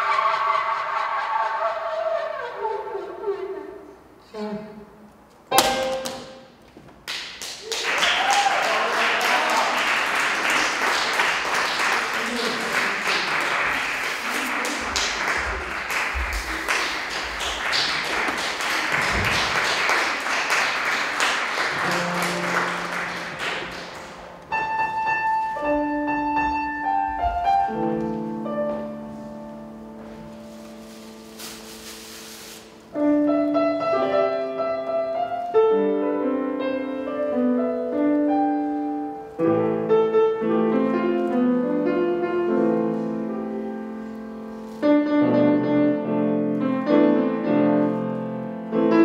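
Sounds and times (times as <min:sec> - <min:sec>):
sharp strike: 0:05.5 - 0:06.4.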